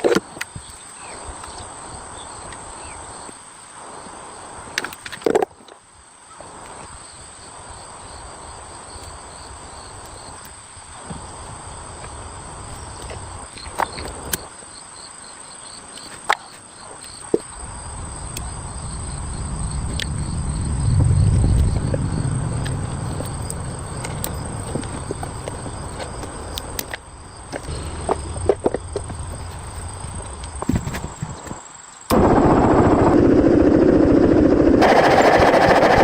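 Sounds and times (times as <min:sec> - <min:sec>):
insects chirping: 0:00.0 - 0:36.0
low rumble: 0:17.6 - 0:30.6, 0:32.1 - 0:35.8.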